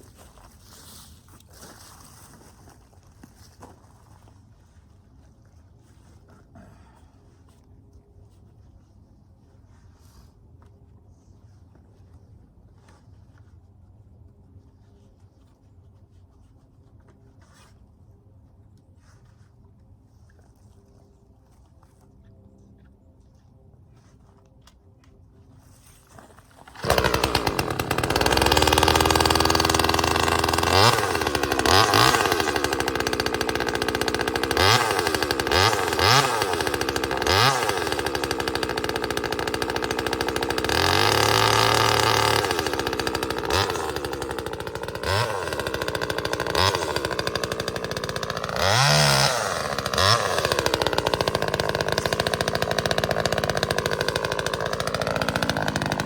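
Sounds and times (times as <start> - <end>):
chainsaw revving: 26.6 - 56.0.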